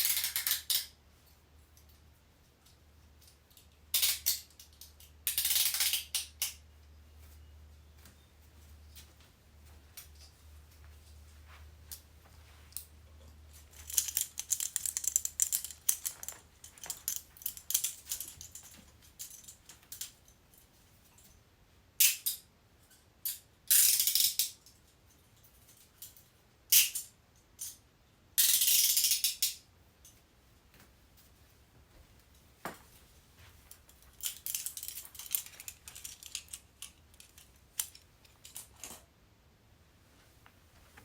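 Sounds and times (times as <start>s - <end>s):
handcuff chain rattling: 13.5s - 19.7s, 33.8s - 38.8s
handcuff clicks: 13.7s - 18.6s
handcuff ratcheting shut: 13.8s - 18.6s.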